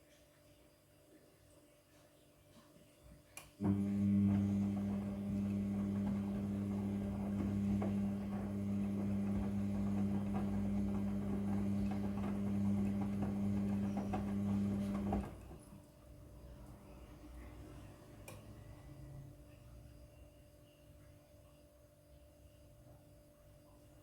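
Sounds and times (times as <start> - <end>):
washing machine humming: 3.6 - 19.4.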